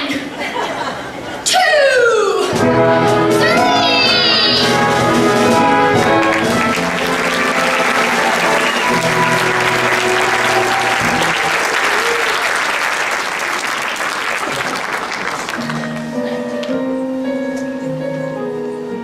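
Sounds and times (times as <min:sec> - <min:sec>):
show music: 0:02.4 - 0:19.0
audience applauding: 0:05.0 - 0:16.6.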